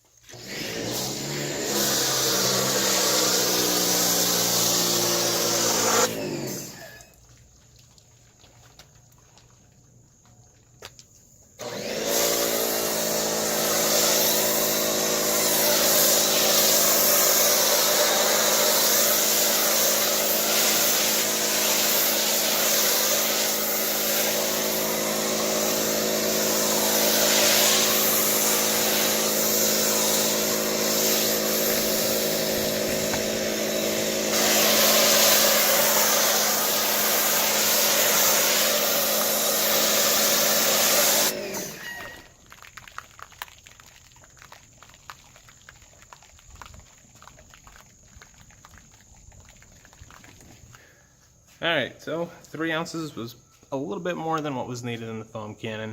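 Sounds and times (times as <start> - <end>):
electric pressure washer running: 0.3 - 7.0, 11.6 - 42.3
hiss of water spraying: 0.8 - 7.2, 11.6 - 50.9.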